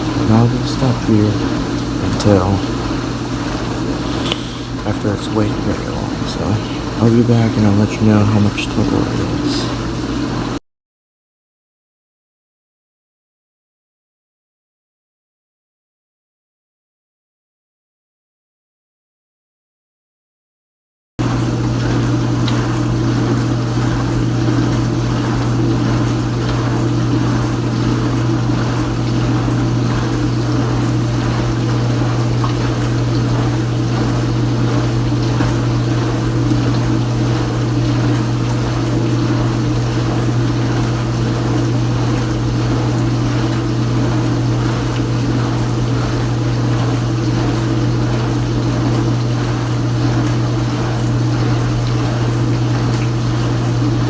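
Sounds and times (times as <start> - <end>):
water spraying: 0.0 - 10.3
dishwasher pump hum: 0.0 - 10.6, 21.2 - 54.0.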